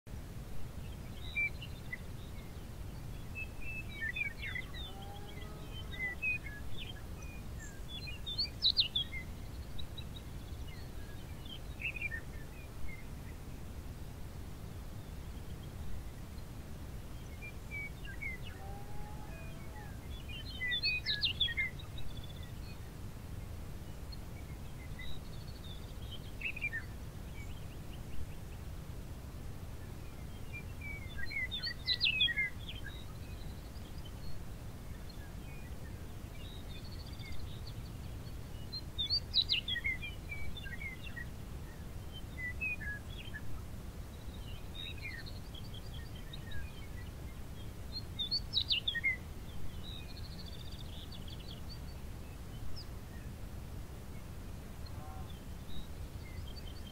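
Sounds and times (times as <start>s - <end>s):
songbird singing: 0.1s - 56.9s.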